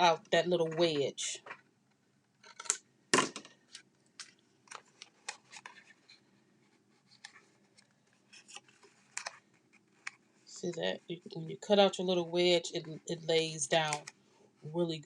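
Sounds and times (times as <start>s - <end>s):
paper clicks and rustles: 2.4s - 6.3s, 7.0s - 10.3s
paper crackle: 3.6s - 6.3s, 7.0s - 10.5s.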